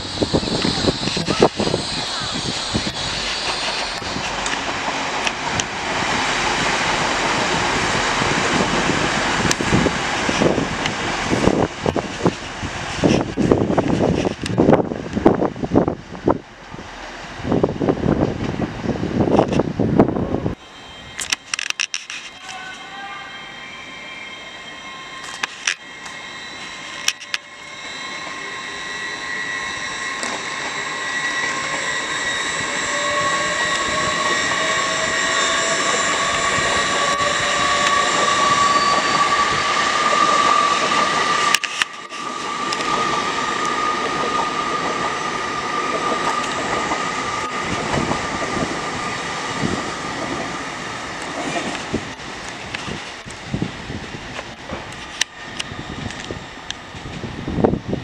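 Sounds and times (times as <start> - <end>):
train motors whining: 0.0 - 14.9, 23.8 - 54.0
wheels rumbling on rail: 0.0 - 23.1, 23.8 - 58.0.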